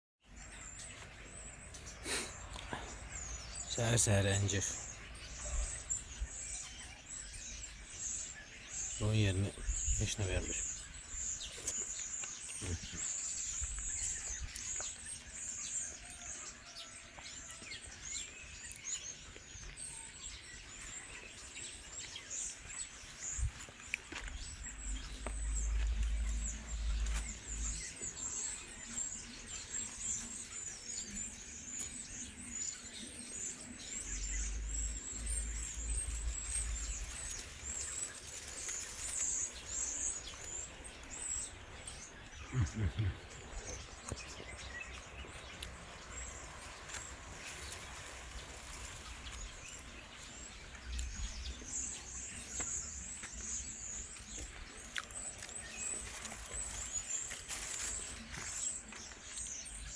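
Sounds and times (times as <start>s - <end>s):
small birds chirping and twittering: 0.2s - 59.9s
low microphone rumble: 24.3s - 29.0s, 33.4s - 44.7s.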